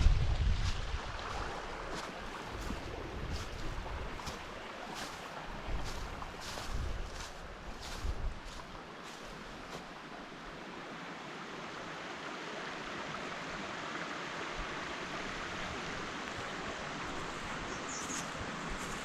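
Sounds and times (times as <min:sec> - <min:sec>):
running water rushing: 0:00.0 - 0:19.0.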